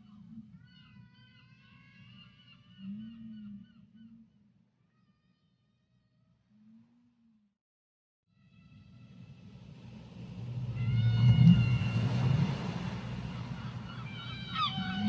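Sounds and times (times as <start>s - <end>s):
whale calls: 0.0s - 5.4s, 10.5s - 15.0s.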